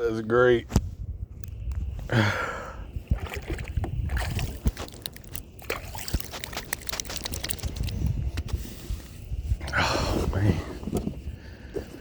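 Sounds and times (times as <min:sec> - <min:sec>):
water trickling and splashing: 0:03.1 - 0:08.1.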